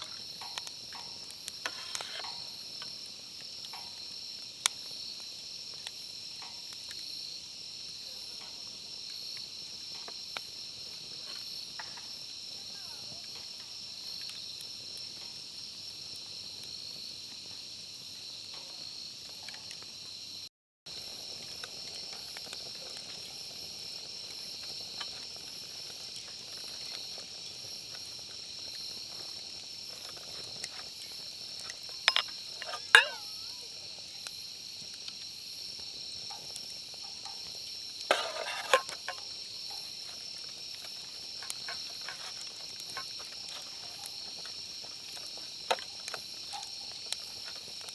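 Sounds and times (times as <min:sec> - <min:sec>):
insects chirring: 0:00.0 - 0:47.9
sharp clicks or clinks: 0:32.1 - 0:33.4.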